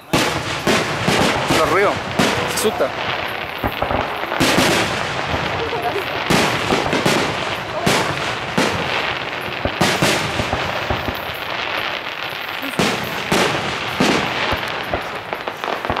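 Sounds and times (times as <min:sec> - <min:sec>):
crackling hiss: 0:00.0 - 0:16.0
fireworks bangs: 0:00.0 - 0:16.0.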